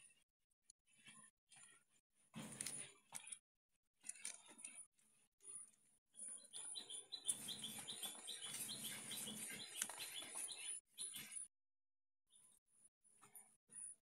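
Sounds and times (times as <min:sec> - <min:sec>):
bird chirping rapidly: 0:06.2 - 0:11.5.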